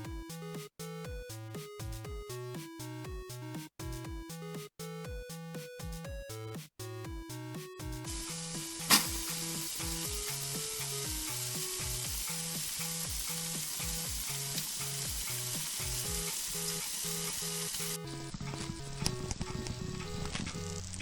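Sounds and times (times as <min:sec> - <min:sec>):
background music with beat: 0:00.0 - 0:21.0
oil sizzling: 0:08.1 - 0:21.0.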